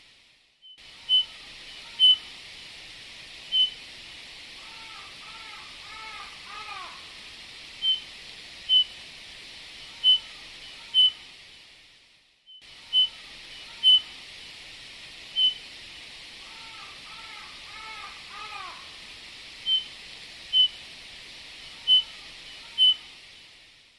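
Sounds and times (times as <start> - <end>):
bird whistling calls: 1.0 - 2.3, 3.5 - 3.8, 7.8 - 8.1, 8.7 - 8.9, 10.0 - 10.3, 10.9 - 11.2, 12.9 - 13.2, 13.8 - 14.1, 15.4 - 15.6, 19.6 - 20.8, 21.8 - 22.1, 22.7 - 23.0.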